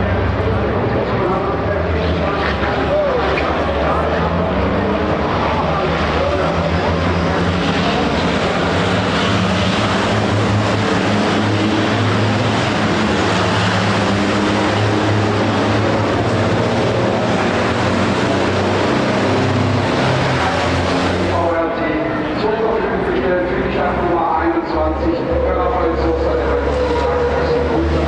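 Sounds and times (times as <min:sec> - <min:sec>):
diesel truck engines droning: 0:00.0 - 0:28.0.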